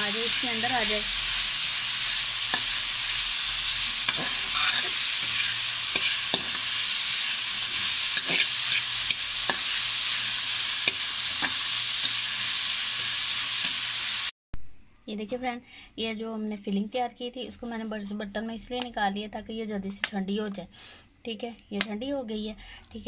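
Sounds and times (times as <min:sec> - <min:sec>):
food sizzling in pan: 0:00.0 - 0:14.3
spatula clicking and scraping pan: 0:02.3 - 0:02.9, 0:03.9 - 0:10.2, 0:10.8 - 0:12.3.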